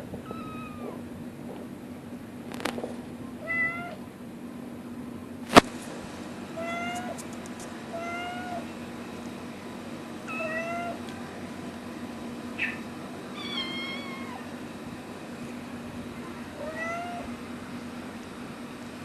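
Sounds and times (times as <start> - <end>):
cat meowing: 0.2 - 1.0, 3.4 - 4.0, 6.6 - 7.2, 8.0 - 8.7, 10.3 - 11.0, 12.6 - 14.5, 16.6 - 17.3.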